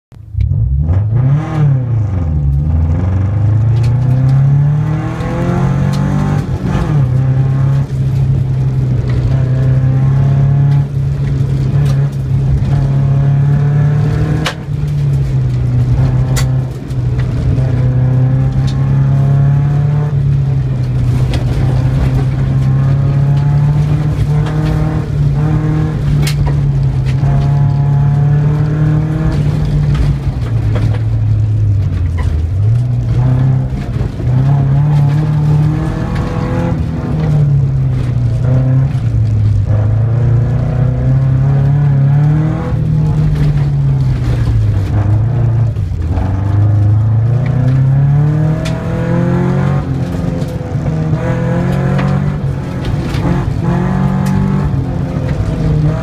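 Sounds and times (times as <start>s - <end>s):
car engine revving inside cabin: 0.2s - 56.0s.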